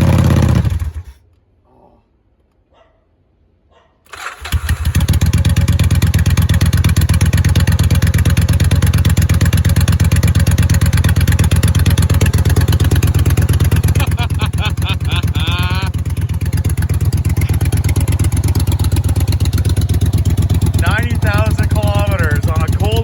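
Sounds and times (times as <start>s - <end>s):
motorcycle engine running on choke: 0.0s - 1.2s, 4.2s - 23.0s.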